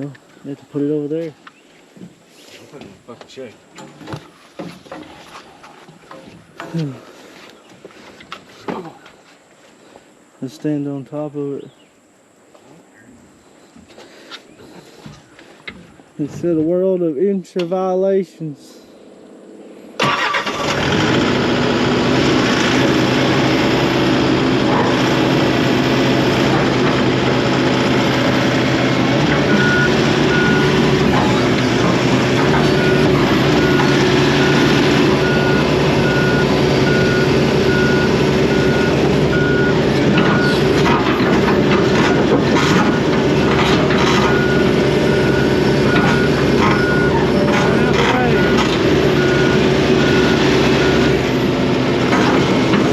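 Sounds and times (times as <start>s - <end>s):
excavator diesel engine running: 20.0s - 52.9s
travel alarm beeping: 29.5s - 30.8s, 32.6s - 40.7s, 44.2s - 47.2s, 48.2s - 51.2s.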